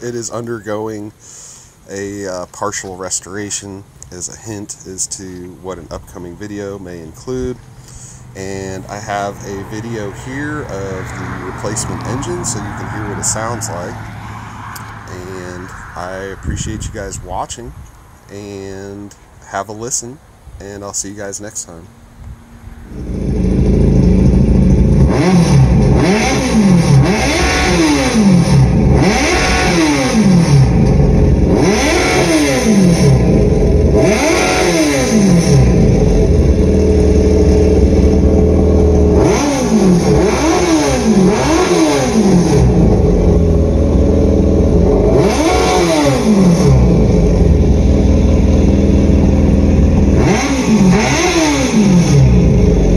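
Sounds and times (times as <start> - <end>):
motorcycle engine revving: 7.2 - 17.2, 22.6 - 52.9.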